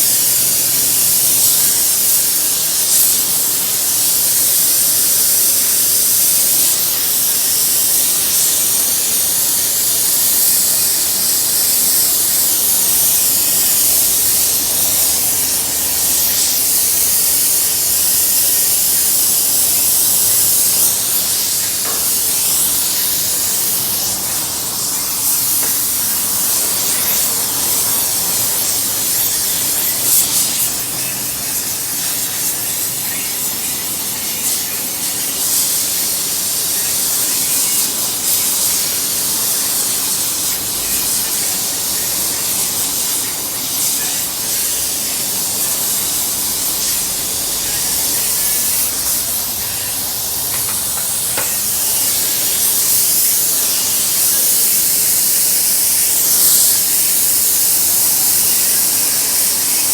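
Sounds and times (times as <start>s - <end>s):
welding arc hissing and sizzling: 0.0s - 59.9s.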